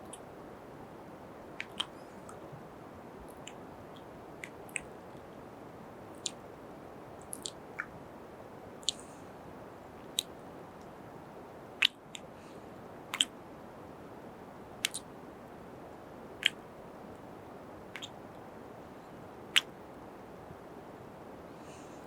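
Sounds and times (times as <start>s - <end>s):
faint hiss: 0.0s - 22.0s
kisses and lip smacks: 7.2s - 7.9s, 14.8s - 15.1s, 18.0s - 18.2s.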